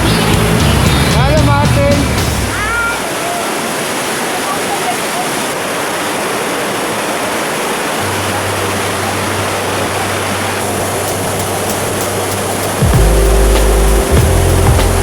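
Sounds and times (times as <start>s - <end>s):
waterfall rushing: 0.0s - 15.0s
low steady hum: 12.2s - 15.0s.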